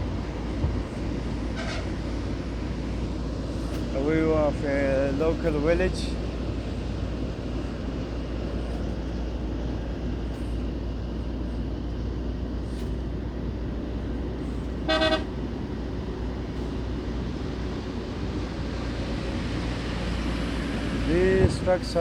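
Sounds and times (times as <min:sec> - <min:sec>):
car road and engine noise: 0:00.0 - 0:22.0
short car horn toot: 0:14.9 - 0:15.3.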